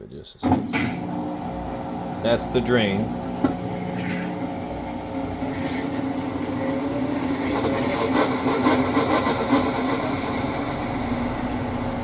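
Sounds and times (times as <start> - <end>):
washing machine hum and whine: 0.4 - 12.0.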